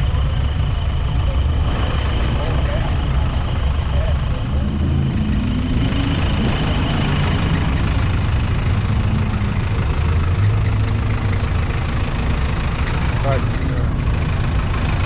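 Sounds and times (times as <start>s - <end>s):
vehicle engines idling: 0.0s - 15.0s.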